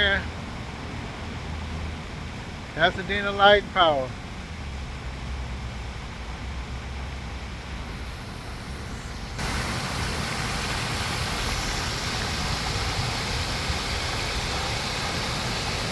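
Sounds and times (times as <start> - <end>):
car rumbling on the move: 3.7 - 14.7
even hiss: 6.8 - 15.9.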